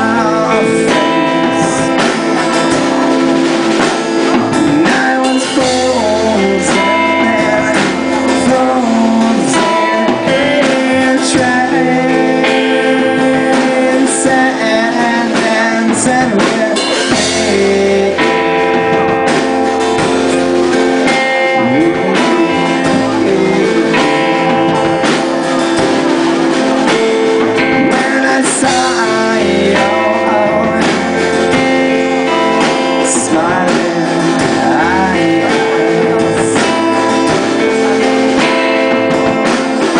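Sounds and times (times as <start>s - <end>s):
drum kit: 0.0s - 39.9s
guitar: 0.0s - 39.9s
live rock band: 0.0s - 39.9s.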